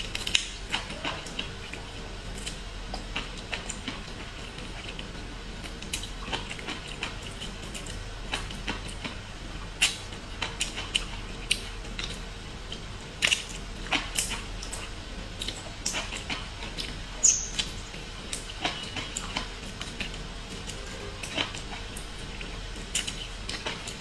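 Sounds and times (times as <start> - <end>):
wet eating clicks and smacks: 0.1 - 24.0.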